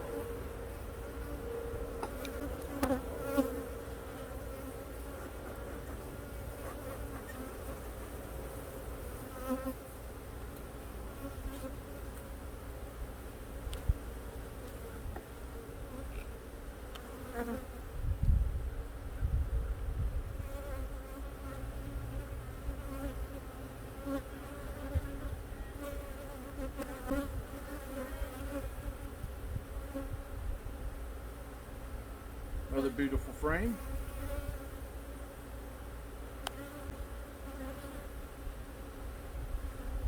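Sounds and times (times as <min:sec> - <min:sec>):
bees buzzing: 0:00.0 - 0:08.3.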